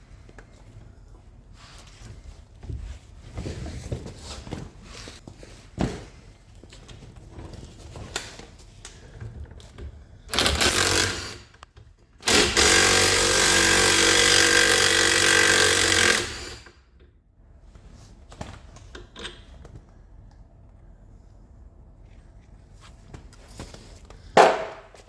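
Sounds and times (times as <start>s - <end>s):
pneumatic impact tool hammering: 10.3s - 11.5s, 12.2s - 16.8s.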